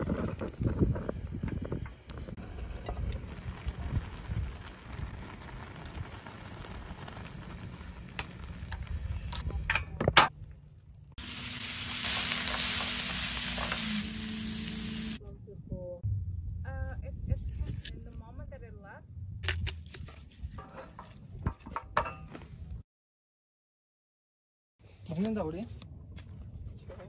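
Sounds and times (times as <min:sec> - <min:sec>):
low rumble: 0:00.0 - 0:11.2, 0:15.2 - 0:19.4
vegetables sizzling in a frying pan: 0:11.2 - 0:15.2.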